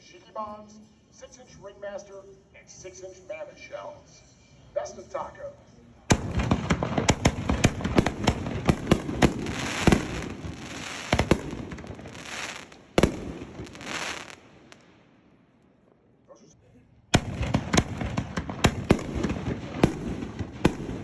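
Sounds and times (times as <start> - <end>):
fireworks bursting and crackling: 6.1 - 15.2, 17.1 - 21.0.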